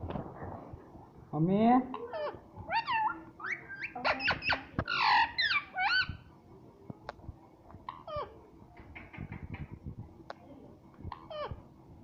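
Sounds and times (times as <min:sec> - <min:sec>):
parrot chirping and squawking: 0:01.9 - 0:06.3, 0:11.1 - 0:11.6.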